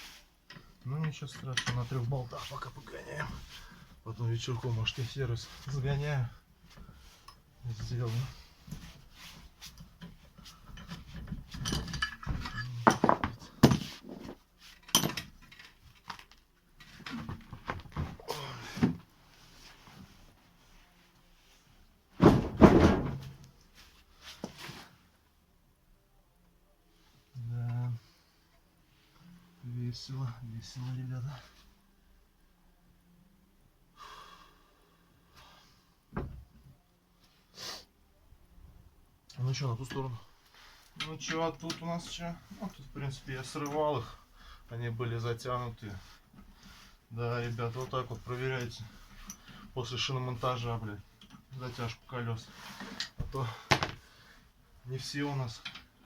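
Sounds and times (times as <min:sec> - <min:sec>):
metal tools clinking: 0:10.7 - 0:13.1.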